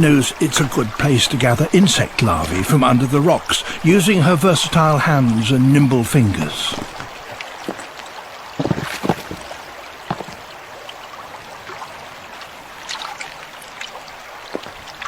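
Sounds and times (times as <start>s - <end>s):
river water rushing over rocks: 0.0s - 15.0s
splashes and stone knocks: 6.3s - 11.0s, 12.8s - 15.0s.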